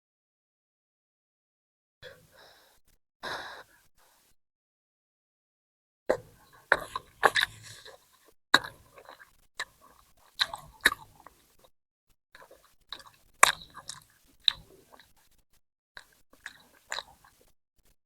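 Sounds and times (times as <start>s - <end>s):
crunchy chewing of food: 6.4s - 11.7s, 12.4s - 15.4s, 16.0s - 17.5s.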